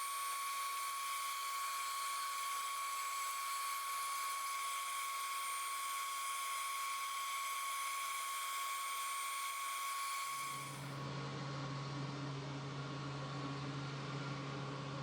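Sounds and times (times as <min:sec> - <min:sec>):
small electric tool whining: 0:00.0 - 0:11.0.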